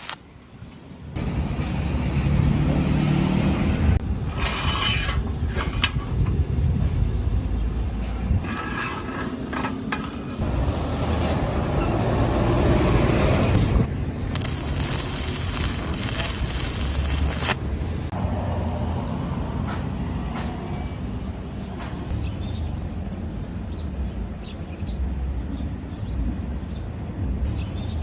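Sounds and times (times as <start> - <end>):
welding arc crackling and hissing: 0.0 - 0.3, 14.3 - 18.1.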